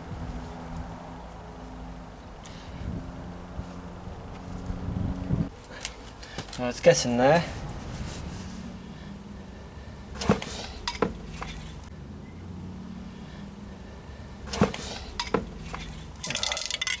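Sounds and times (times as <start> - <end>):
metal objects clinking together: 15.2 - 17.0.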